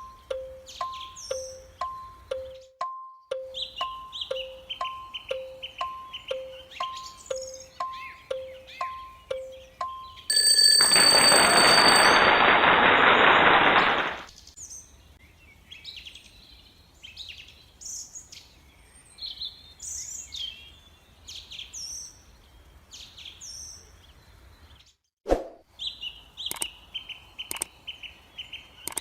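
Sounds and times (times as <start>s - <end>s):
two-note beeps: 0.0s - 10.3s
birds chirping: 0.0s - 10.7s, 25.8s - 29.0s
electric bell ringing: 9.8s - 14.1s.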